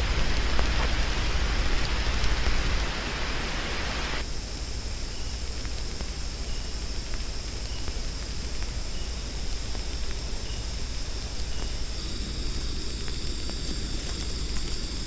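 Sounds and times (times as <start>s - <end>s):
high insect drone: 3.0s - 15.0s.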